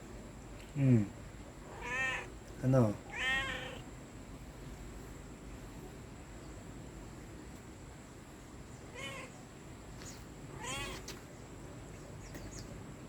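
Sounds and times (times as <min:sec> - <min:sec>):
cat meowing: 0:01.7 - 0:02.3, 0:03.1 - 0:03.8, 0:08.9 - 0:09.4, 0:10.5 - 0:11.2.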